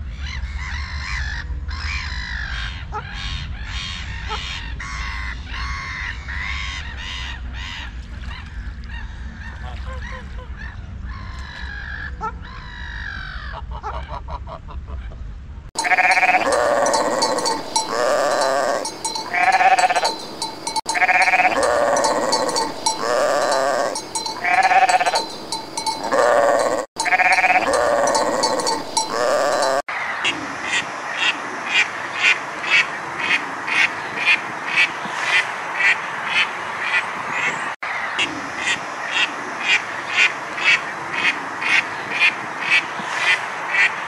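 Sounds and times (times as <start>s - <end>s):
sheep bleating: 15.8s - 29.8s.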